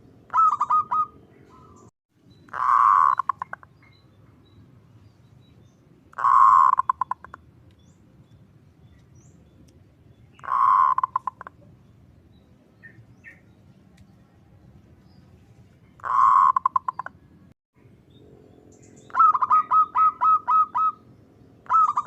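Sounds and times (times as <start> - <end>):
dove calling with purr and coos: 0.0 - 1.9, 2.5 - 4.0, 6.1 - 7.4, 10.4 - 11.7, 16.0 - 17.2, 18.7 - 22.0.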